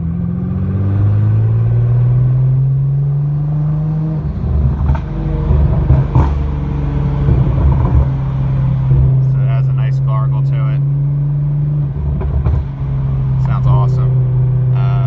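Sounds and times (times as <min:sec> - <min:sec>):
car exhaust note: 0:00.0 - 0:15.0
exhaust pops: 0:04.5 - 0:08.4, 0:12.0 - 0:14.0.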